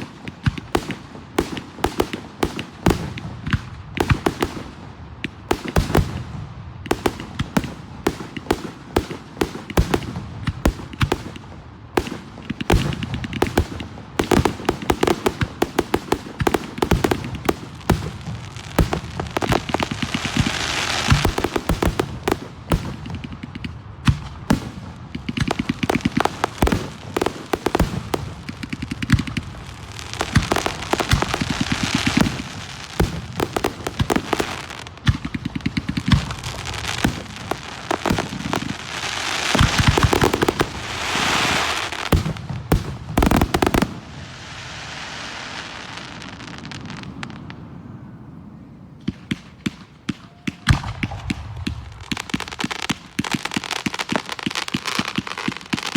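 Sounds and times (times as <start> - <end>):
fireworks hissing crackle: 12.7 - 23.6, 24.6 - 47.6, 50.9 - 55.9.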